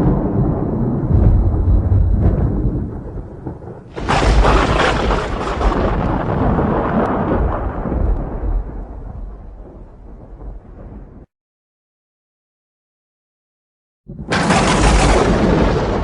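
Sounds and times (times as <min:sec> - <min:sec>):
loud thunderclap: 0:00.0 - 0:11.3, 0:14.1 - 0:16.0
thunder rumbling: 0:00.0 - 0:11.3, 0:14.1 - 0:16.0.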